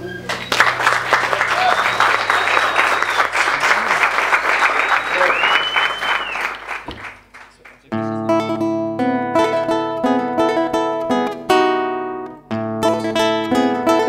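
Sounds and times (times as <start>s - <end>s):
acoustic guitar strumming chords: 7.9s - 14.0s.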